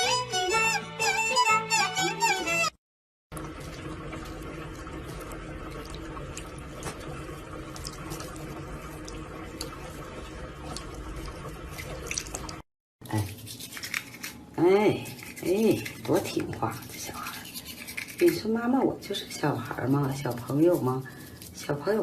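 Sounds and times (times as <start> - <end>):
water running from a tap: 3.3 - 14.3.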